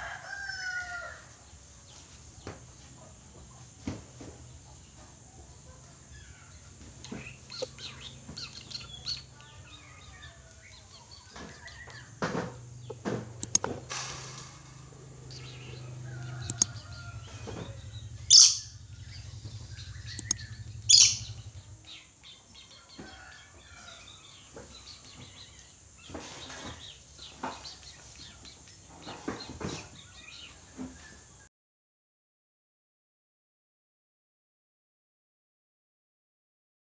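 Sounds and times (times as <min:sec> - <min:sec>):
low steady hum: 0:15.2 - 0:22.5
parrot chattering and squawking: 0:18.3 - 0:18.7, 0:20.2 - 0:21.3.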